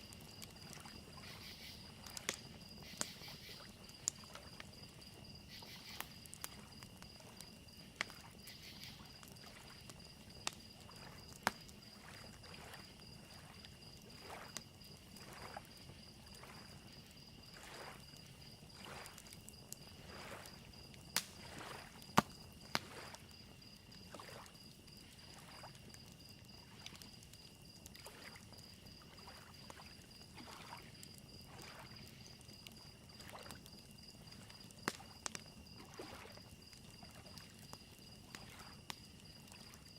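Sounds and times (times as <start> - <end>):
crackling fire pops: 0.0 - 39.9
crickets chirping: 0.0 - 39.9
lake waves lapping on shore: 8.1 - 23.4, 24.0 - 26.0, 27.9 - 28.4, 29.0 - 32.3, 33.1 - 33.6, 34.3 - 37.7, 38.3 - 38.8.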